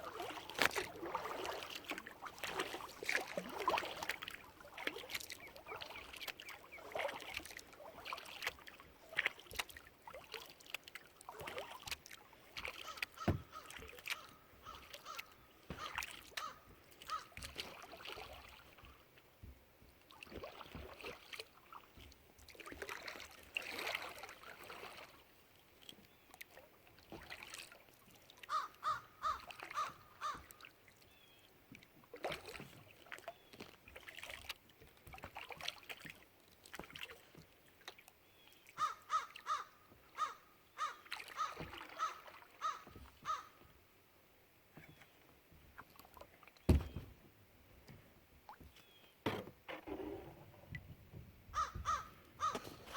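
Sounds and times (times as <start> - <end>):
paddle splashing in water: 0.0 - 43.8, 44.7 - 52.9
bird calling: 12.8 - 17.3, 28.5 - 30.5, 38.4 - 43.6, 51.6 - 52.9.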